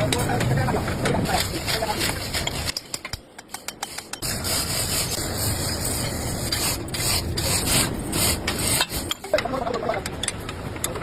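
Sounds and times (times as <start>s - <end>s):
abrasive rasping on metal: 3.5s - 9.4s.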